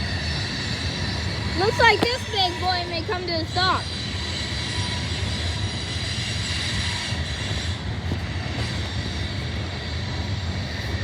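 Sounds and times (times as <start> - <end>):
freight train rumbling: 0.0 - 11.0.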